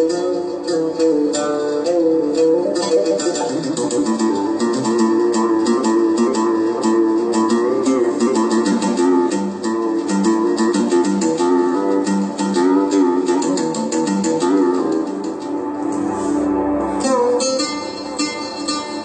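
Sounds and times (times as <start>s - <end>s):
keyboard plucked-string melody: 0.0s - 19.0s.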